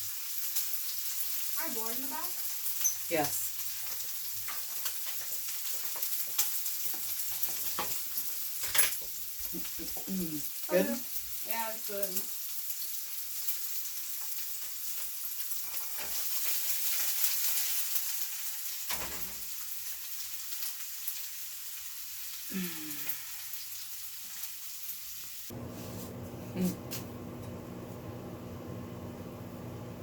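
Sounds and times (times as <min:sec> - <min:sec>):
food sizzling in a pan: 0:00.0 - 0:29.9.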